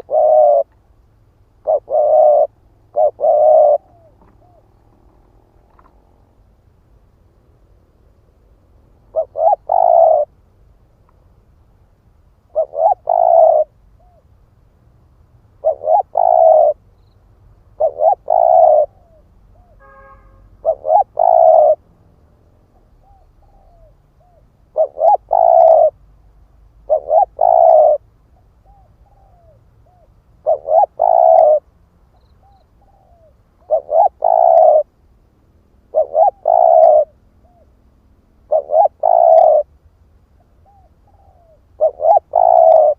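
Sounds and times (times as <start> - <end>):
dove cooing: 0.0 - 0.8, 1.6 - 6.2, 9.0 - 10.4, 12.5 - 14.3, 15.6 - 16.8, 17.8 - 19.8, 20.6 - 21.8, 22.8 - 26.0, 26.8 - 34.9, 35.9 - 37.8, 38.4 - 39.7, 40.4 - 42.9.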